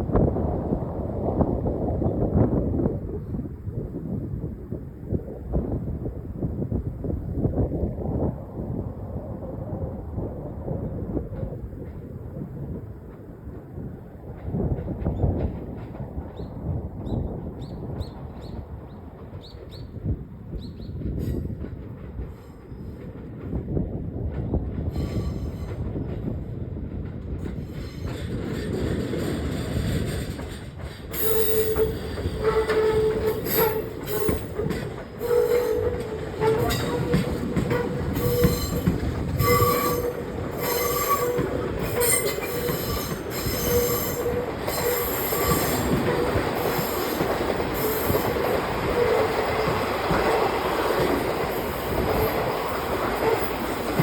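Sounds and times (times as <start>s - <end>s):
train running noise: 0.0s - 54.0s
train wheels squealing: 24.8s - 26.1s, 27.5s - 54.0s.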